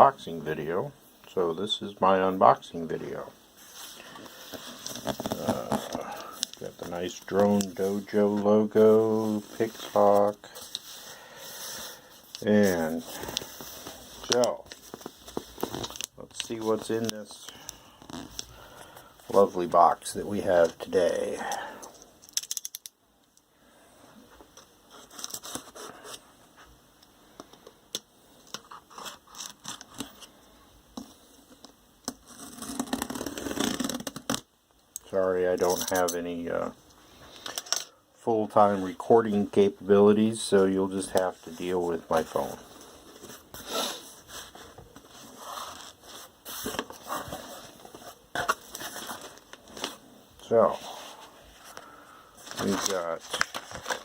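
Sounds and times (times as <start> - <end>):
cardboard scratching and scraping: 3.6 - 6.2, 32.2 - 34.4, 42.1 - 50.0
packaging rustling and scraping: 3.6 - 19.7, 24.9 - 26.2, 28.4 - 30.3, 41.0 - 54.0.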